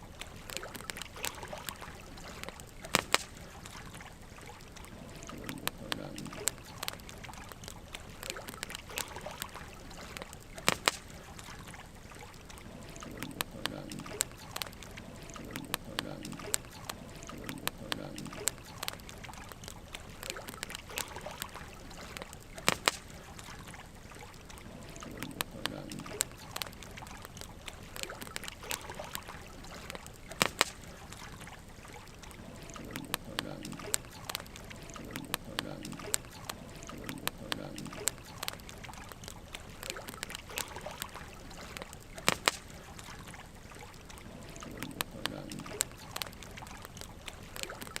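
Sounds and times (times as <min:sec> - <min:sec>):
logs crackling and popping: 0:00.0 - 0:48.0
wood fire hissing: 0:12.7 - 0:19.2, 0:24.7 - 0:29.0, 0:32.3 - 0:38.8, 0:44.3 - 0:46.6.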